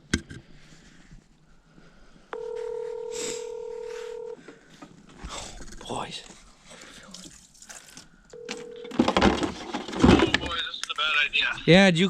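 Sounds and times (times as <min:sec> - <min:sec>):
telephone ringback tone: 0:02.4 - 0:04.4, 0:08.4 - 0:09.2.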